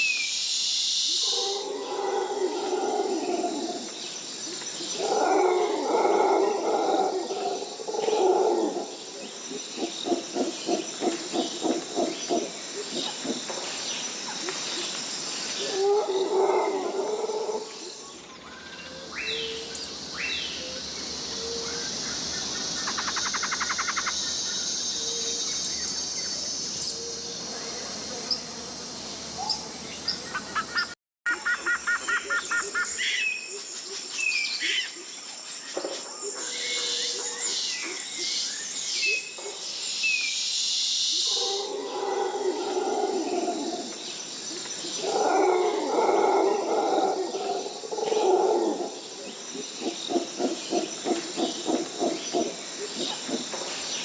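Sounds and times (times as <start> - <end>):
high insect drone: 0.0 - 30.9
bird chirps and calls: 18.4 - 27.2.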